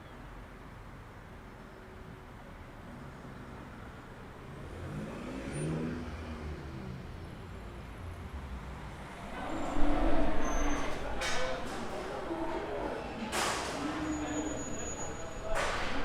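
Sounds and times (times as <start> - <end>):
car engine rumble passing: 4.4 - 16.0.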